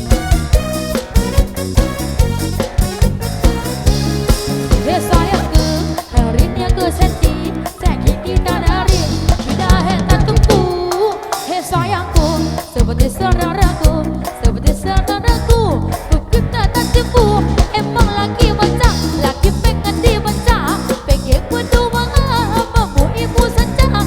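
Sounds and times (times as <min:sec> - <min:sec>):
bending sliding lead melody: 0:00.0 - 0:11.0
heavy bass: 0:00.0 - 0:11.0, 0:11.7 - 0:24.0
drum kit beat: 0:00.0 - 0:24.0.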